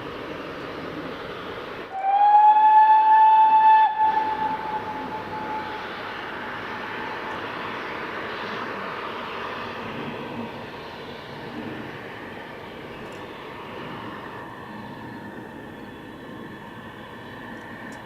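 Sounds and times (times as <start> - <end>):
steady rushing noise: 0.0 - 2.0, 3.8 - 18.0
steam locomotive whistle: 1.9 - 6.5.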